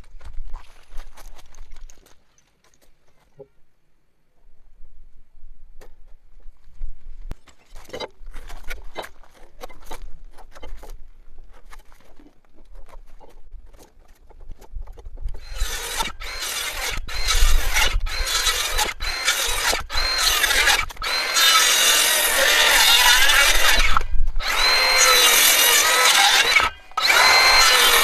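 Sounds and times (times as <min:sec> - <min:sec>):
circular saw cutting timber: 0:15.3 - 0:28.0.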